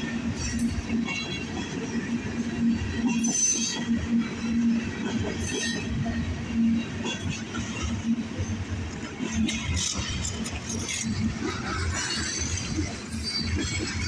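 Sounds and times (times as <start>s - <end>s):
steel wheels rumbling on rails: 0.0s - 14.0s
high-pitched wheel squeal: 12.1s - 13.6s.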